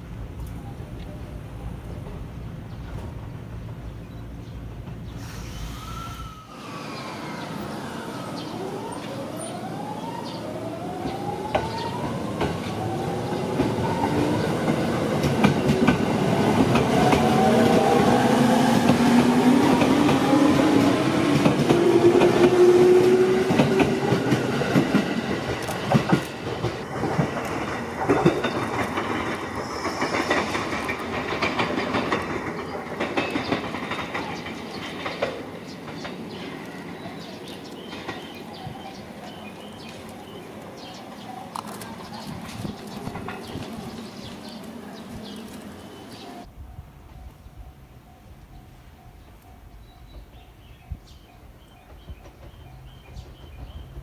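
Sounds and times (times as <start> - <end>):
train wheels clattering: 11.0 - 46.3, 49.1 - 54.0.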